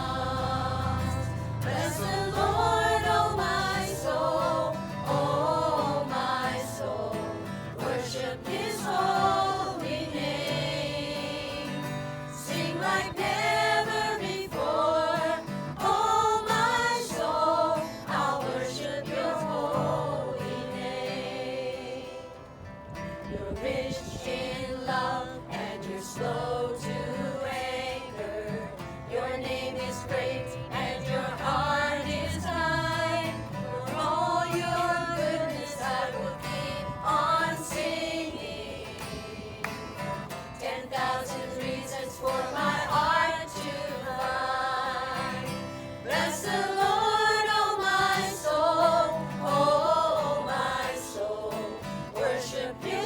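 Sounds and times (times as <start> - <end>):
group singing gospel song: 0.0 - 22.6, 23.2 - 53.0.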